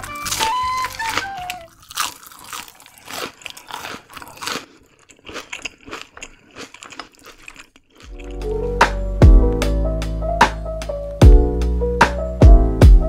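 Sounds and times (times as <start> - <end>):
music: 0.0 - 1.7, 8.1 - 13.0
crunchy chewing: 0.0 - 8.5.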